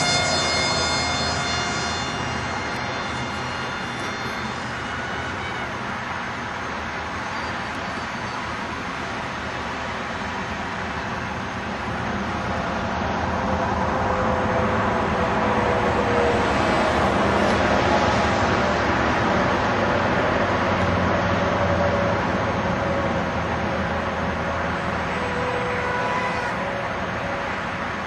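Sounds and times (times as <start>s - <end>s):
electric motor and propeller whining: 0.0s - 28.0s
steady rushing noise: 0.0s - 28.0s.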